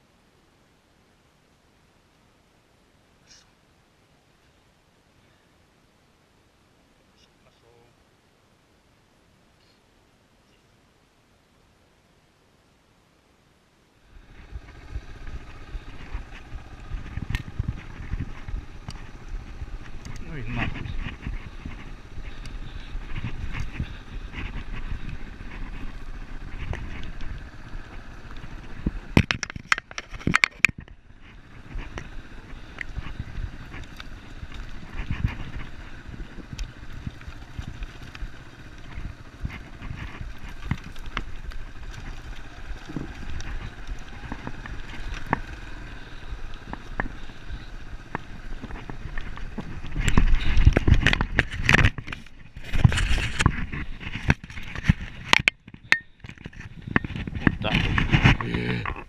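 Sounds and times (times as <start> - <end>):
motorcycle engine rumbling: 14.0 - 59.0.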